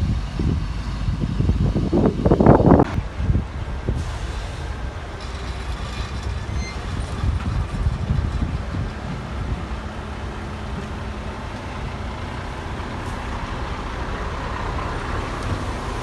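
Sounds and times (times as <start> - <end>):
diesel machinery engine rumble: 0.0 - 16.0
hiss: 3.9 - 6.3.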